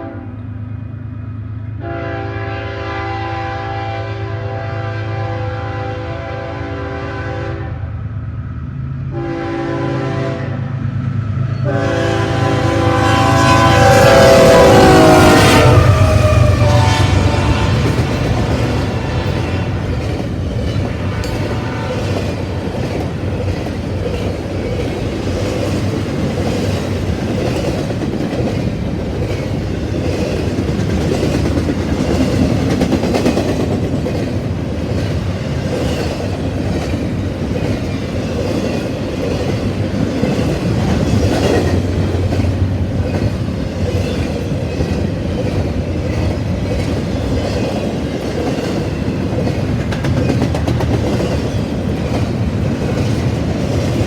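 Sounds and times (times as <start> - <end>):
train rumbling past: 0.0 - 54.0
wheels clicking over rail joints: 16.0 - 54.0.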